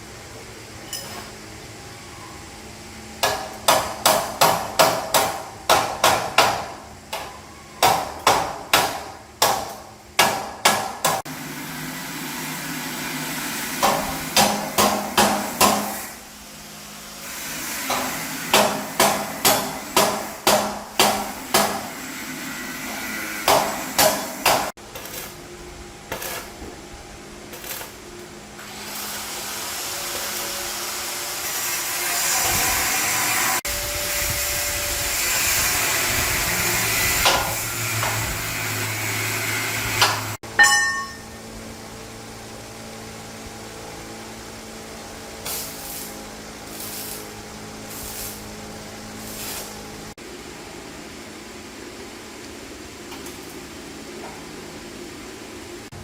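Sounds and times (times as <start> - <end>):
hammer striking metal: 3.2 - 11.3, 13.8 - 16.1, 17.9 - 21.9, 23.5 - 24.7, 40.0 - 41.4
machine noise: 10.4 - 56.0.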